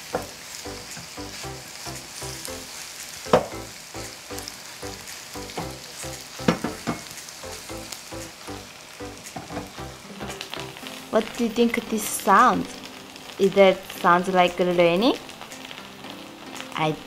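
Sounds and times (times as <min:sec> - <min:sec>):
music with steady beat: 0:00.0 - 0:11.8
batter sizzling in hot oil: 0:00.0 - 0:17.0.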